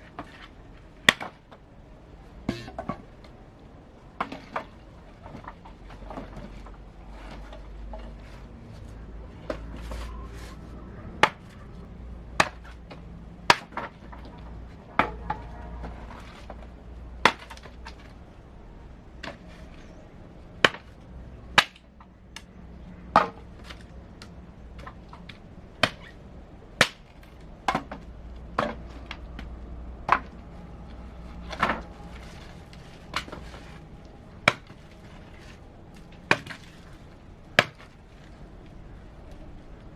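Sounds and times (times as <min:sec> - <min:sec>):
chopping wood: 0:01.0 - 0:01.5, 0:11.2 - 0:11.5, 0:12.4 - 0:14.3, 0:17.2 - 0:18.0, 0:20.6 - 0:21.0, 0:21.6 - 0:22.5, 0:23.1 - 0:23.8, 0:24.8 - 0:26.1, 0:26.8 - 0:28.0, 0:28.6 - 0:30.4, 0:34.4 - 0:34.9, 0:36.2 - 0:36.7, 0:37.6 - 0:37.9.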